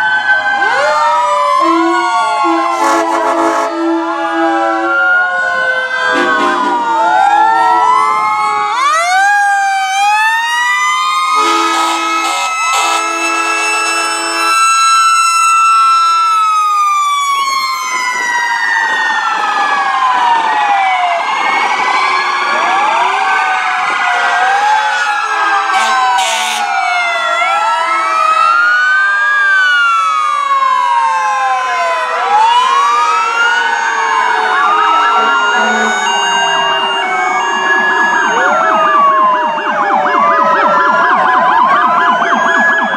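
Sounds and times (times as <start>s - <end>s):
fire truck sirens wailing: 0.0s - 42.9s
horn blasts: 1.6s - 4.9s, 6.1s - 6.9s, 11.4s - 14.6s, 25.7s - 26.7s.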